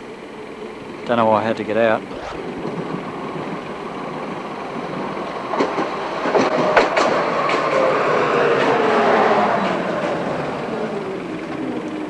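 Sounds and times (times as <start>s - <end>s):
tram running past: 2.4s - 12.0s.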